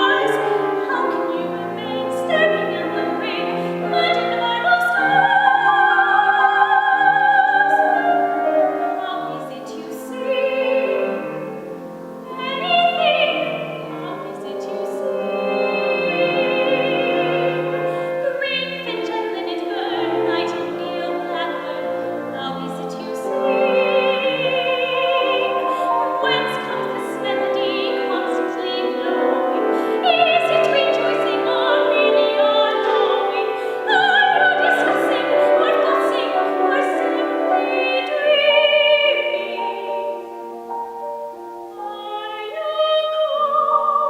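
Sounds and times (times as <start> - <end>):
woman singing operatically: 0.0 - 40.6, 41.6 - 44.0
instrumental accompaniment: 0.0 - 44.0.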